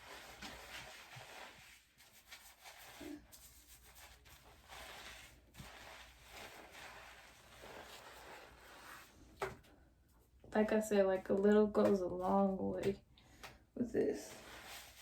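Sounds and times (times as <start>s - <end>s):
hands rubbing lather in wet hair: 0.0s - 9.1s, 14.2s - 15.0s.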